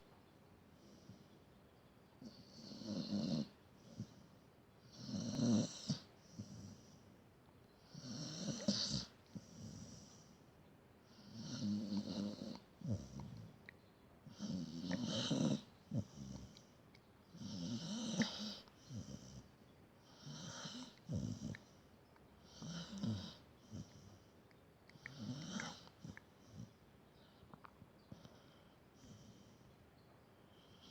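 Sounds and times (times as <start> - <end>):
dog snoring: 2.2 - 7.0, 7.8 - 10.4, 11.1 - 13.6, 14.2 - 16.7, 17.3 - 21.8, 22.4 - 24.3, 24.9 - 27.4.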